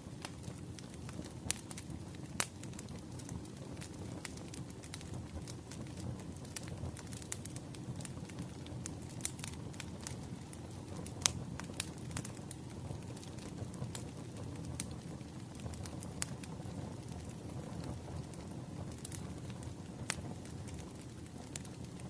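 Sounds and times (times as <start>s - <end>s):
burning logs rumbling: 0.0s - 22.0s
wood fire crackling: 0.0s - 22.0s.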